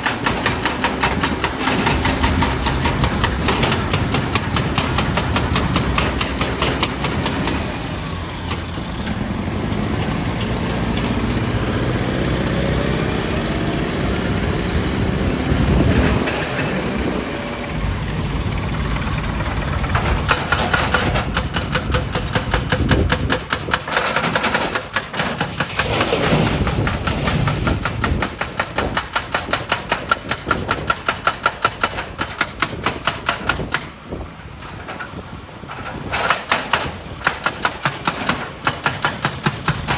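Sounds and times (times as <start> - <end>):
heavy machine engine running: 0.0 - 31.2.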